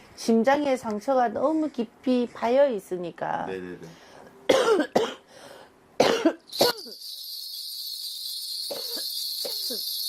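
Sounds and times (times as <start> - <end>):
person coughing: 4.5 - 5.3, 6.0 - 7.0
steady high-pitched hiss: 6.5 - 10.0.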